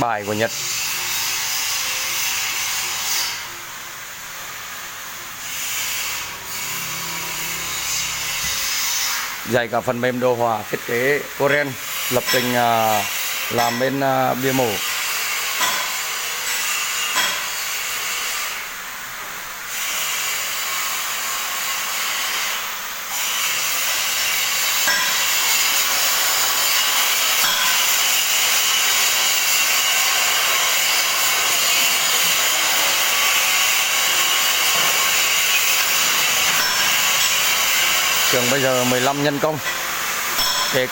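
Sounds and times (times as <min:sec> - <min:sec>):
power tool cutting metal: 0:00.0 - 0:40.9.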